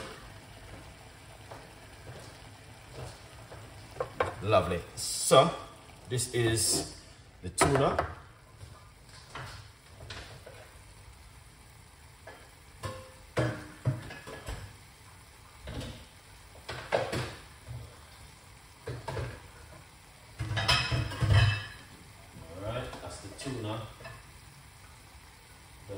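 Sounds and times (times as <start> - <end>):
vegetables sizzling in a pot: 0.0 - 25.9.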